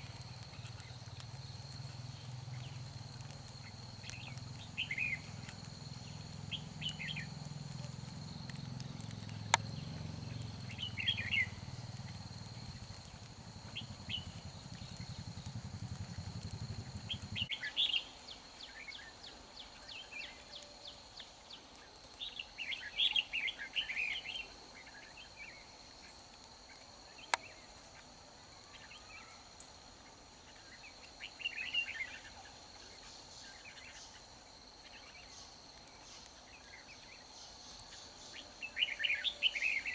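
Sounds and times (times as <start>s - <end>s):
birds singing warbled phrases: 4.1s - 5.3s, 9.3s - 11.6s.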